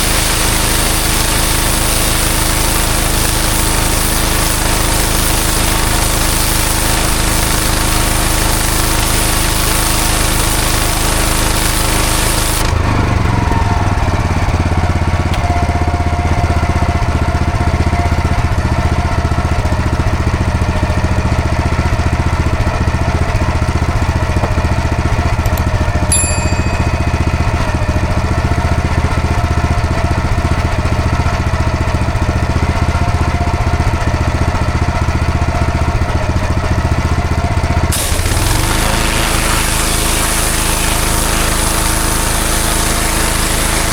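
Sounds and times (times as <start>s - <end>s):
water jet hissing: 0.0s - 16.6s, 26.4s - 29.7s, 37.9s - 43.9s
pressure washer engine running: 0.0s - 43.9s.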